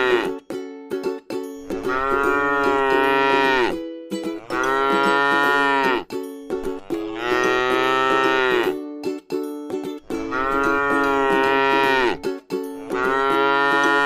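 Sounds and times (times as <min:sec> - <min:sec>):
cow mooing: 0:00.0 - 0:00.3, 0:01.8 - 0:03.8, 0:04.4 - 0:06.1, 0:06.8 - 0:08.8, 0:10.1 - 0:12.2, 0:12.8 - 0:14.0.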